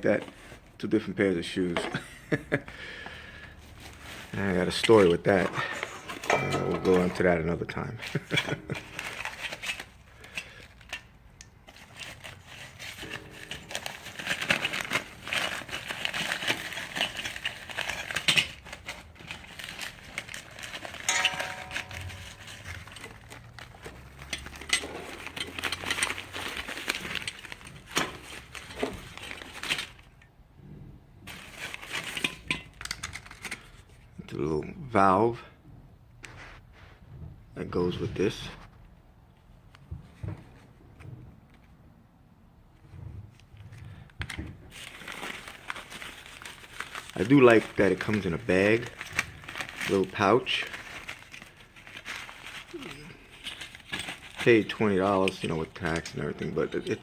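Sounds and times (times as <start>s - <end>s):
packaging rustling and crinkling: 3.6s - 7.4s, 8.0s - 30.2s, 31.2s - 33.9s, 43.4s - 57.0s
small metal parts clinking: 6.1s - 7.3s, 20.7s - 26.3s.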